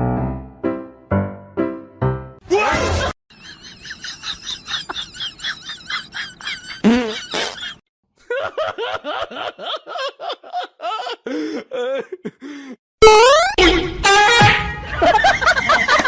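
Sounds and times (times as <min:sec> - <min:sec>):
high laugh-like vocal bursts: 0:02.6 - 0:12.4.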